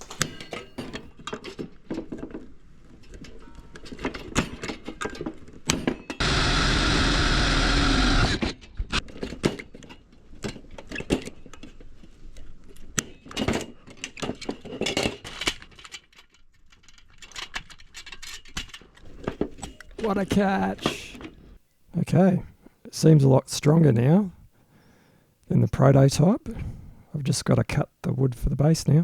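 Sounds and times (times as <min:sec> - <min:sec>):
machine whirr: 0:06.2 - 0:08.6.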